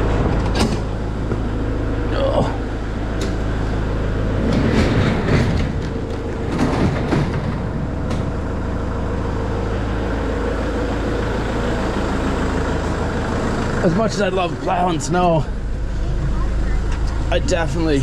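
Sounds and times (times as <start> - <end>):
diesel tractor engine running: 0.0 - 18.0
rattles and knocks: 3.1 - 8.7.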